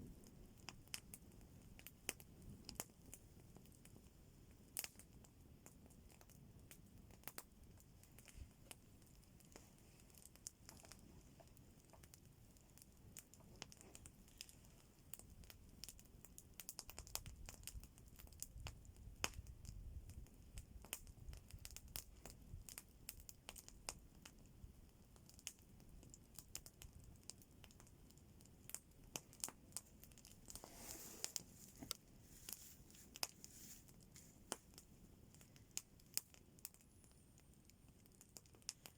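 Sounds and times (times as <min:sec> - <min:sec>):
campfire crackling and popping: 0:00.0 - 0:38.9
soft rush of noise: 0:30.4 - 0:35.1.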